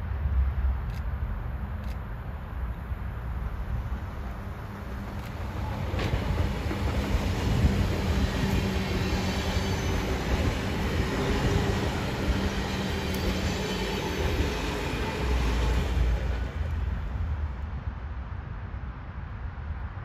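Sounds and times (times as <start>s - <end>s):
train wheels on rails: 3.4s - 17.6s.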